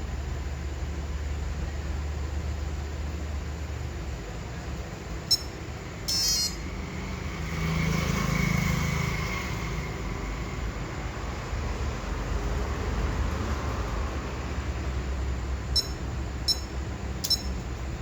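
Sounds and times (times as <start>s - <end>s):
steady low hum: 0.0s - 7.8s, 14.4s - 18.0s
electronic beeps and chirps: 5.3s - 6.7s, 15.8s - 17.6s.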